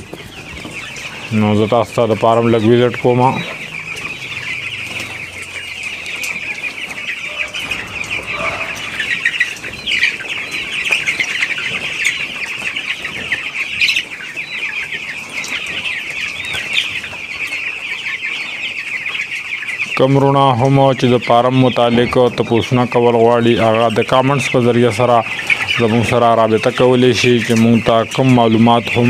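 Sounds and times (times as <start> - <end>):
chicks peeping: 0.0 - 29.0.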